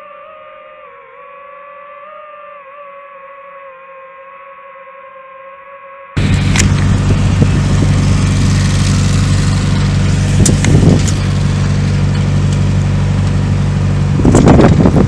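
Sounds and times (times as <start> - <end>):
boat engine droning: 6.2 - 15.0.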